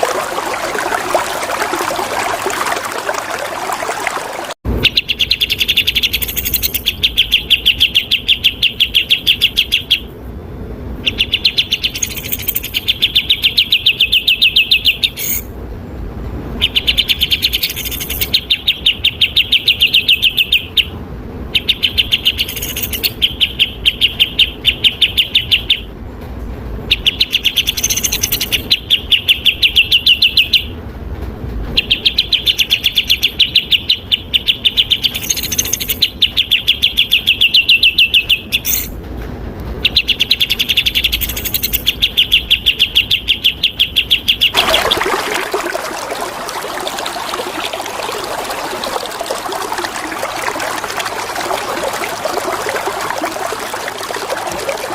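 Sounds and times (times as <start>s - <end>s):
flowing water: 0.0s - 4.6s, 16.5s - 21.0s, 44.5s - 54.9s
songbird chattering song: 4.8s - 10.1s, 11.0s - 15.5s, 16.6s - 20.9s, 21.5s - 25.9s, 26.9s - 30.7s, 31.8s - 38.9s, 39.8s - 44.6s.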